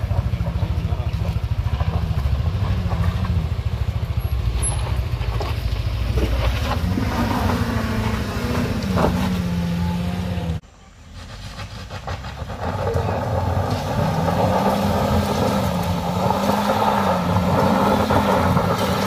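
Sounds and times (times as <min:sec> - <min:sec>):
engine labouring under load: 0:00.0 - 0:19.0.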